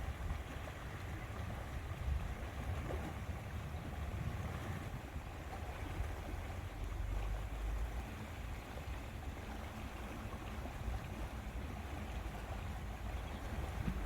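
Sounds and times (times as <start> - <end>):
water lapping against shore: 0.0 - 14.0
wind rumble on microphone: 0.0 - 14.0.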